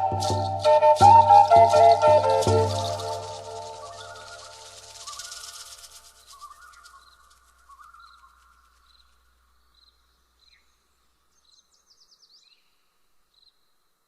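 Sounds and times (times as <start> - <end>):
short high chirp: 0.0 - 5.8
fast bird trill: 0.0 - 9.1.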